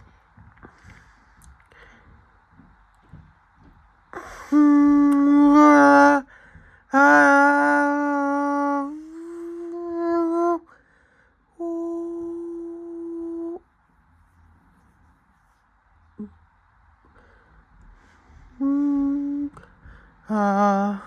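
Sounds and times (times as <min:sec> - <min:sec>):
person humming: 0:04.2 - 0:06.3, 0:06.9 - 0:10.8, 0:11.6 - 0:13.6, 0:18.5 - 0:21.0.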